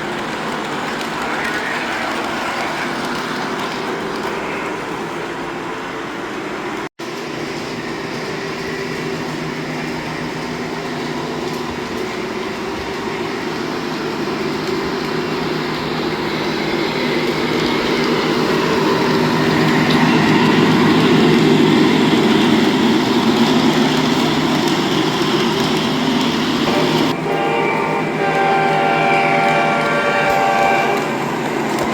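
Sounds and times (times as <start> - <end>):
model train running on track: 0.0 - 31.9
model train horn: 26.6 - 31.4.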